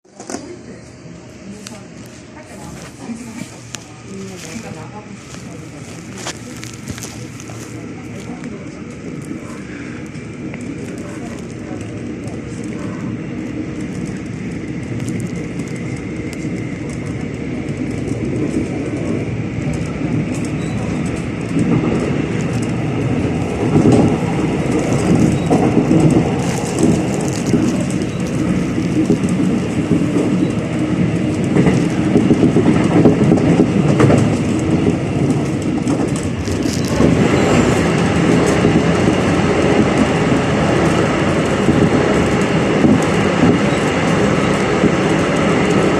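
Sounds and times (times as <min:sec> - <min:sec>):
train running noise: 0:00.0 - 0:45.9
electric whine of train: 0:00.1 - 0:45.9
wheels clacking on rails: 0:02.9 - 0:45.9.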